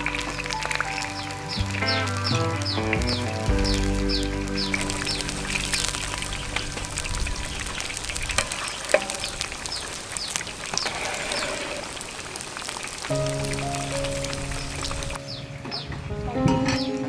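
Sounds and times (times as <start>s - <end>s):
food sizzling in hot oil: 3.5s - 15.2s.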